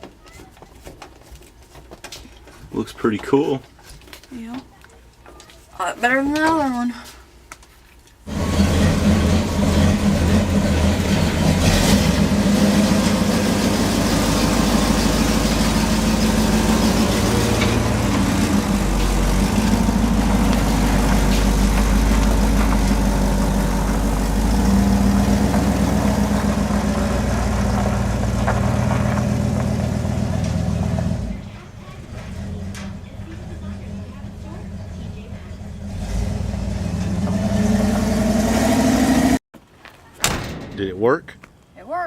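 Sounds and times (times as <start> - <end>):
pickup truck engine running: 8.3 - 39.4.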